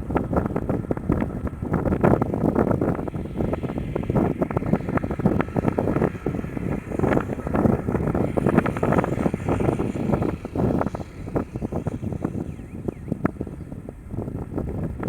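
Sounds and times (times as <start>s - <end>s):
jet airliner engine noise: 0.0s - 15.0s
wind buffeting microphone: 0.0s - 15.0s.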